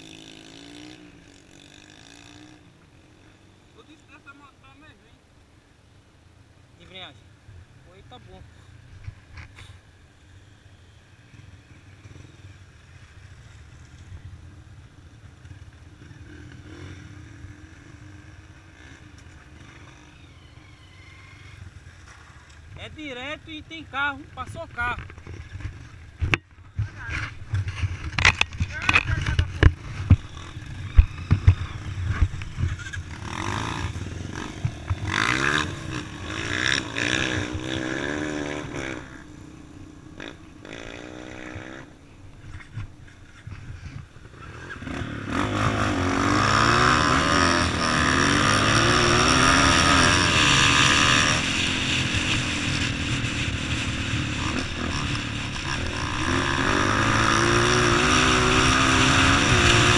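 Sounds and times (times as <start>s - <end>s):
motorcycle engine revving: 0.0s - 4.2s, 11.1s - 59.9s.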